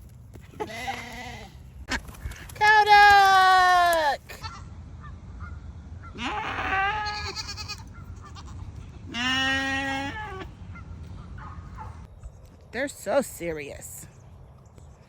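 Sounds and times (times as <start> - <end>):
goat bleating: 0.6 - 1.6, 6.1 - 10.5.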